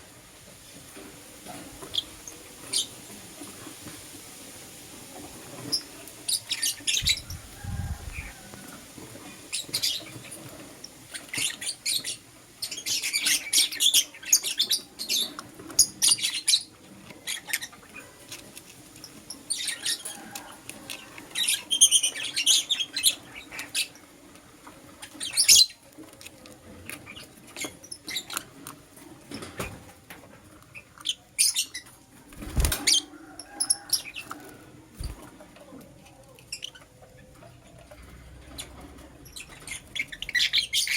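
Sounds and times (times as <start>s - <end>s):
lovebirds chirping: 5.7s - 8.6s, 25.0s - 25.8s, 36.5s - 40.9s.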